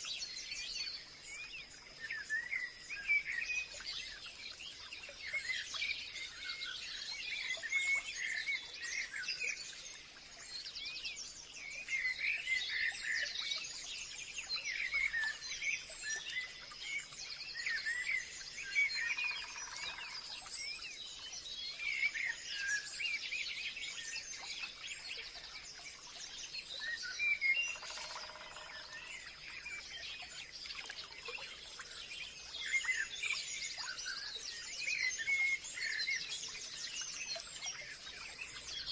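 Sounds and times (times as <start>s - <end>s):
birds chirping and trilling: 14.5s - 38.9s.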